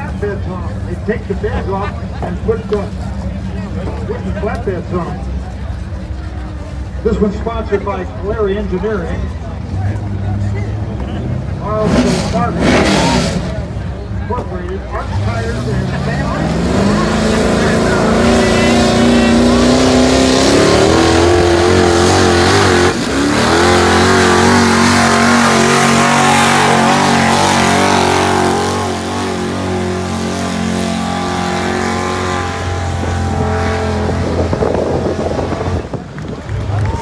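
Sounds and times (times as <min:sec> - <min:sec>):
truck engine at full throttle: 0:00.0 - 0:37.0.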